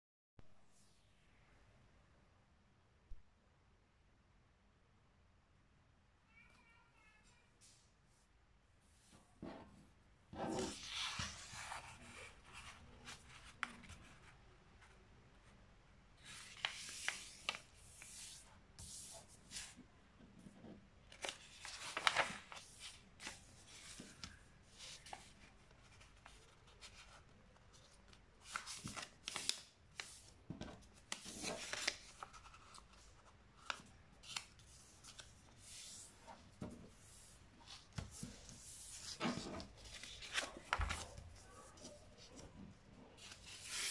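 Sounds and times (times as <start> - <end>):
paper folding and creasing: 10.4 - 15.0, 16.2 - 19.8, 20.5 - 43.9
sharp paper crackle: 21.1 - 24.2, 31.1 - 32.9.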